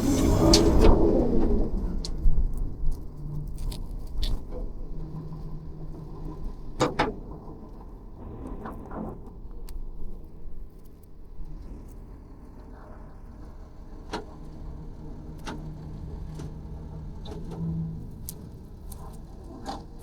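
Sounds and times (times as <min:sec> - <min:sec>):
garbage truck engine idling: 0:00.0 - 0:02.1.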